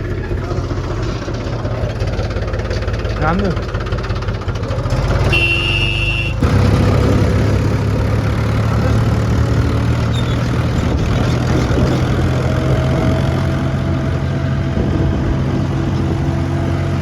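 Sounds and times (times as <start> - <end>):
tractor diesel engine running: 0.0 - 17.0
high steady beep: 5.4 - 6.4.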